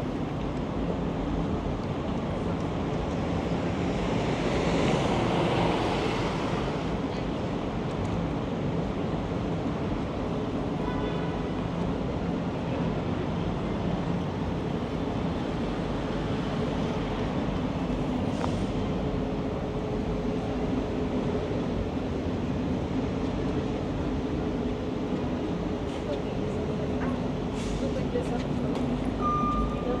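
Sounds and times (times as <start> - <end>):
rumble of street vehicles: 0.0 - 30.0.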